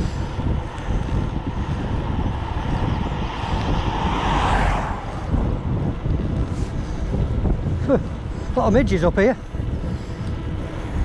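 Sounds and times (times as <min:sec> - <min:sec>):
car passing: 0:00.0 - 0:08.3
wind rumbling on microphone: 0:00.0 - 0:11.0.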